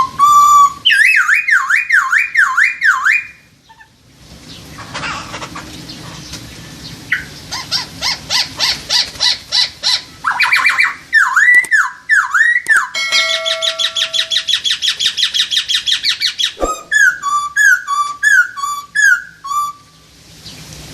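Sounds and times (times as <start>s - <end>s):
songbird singing: 10.3s - 19.8s.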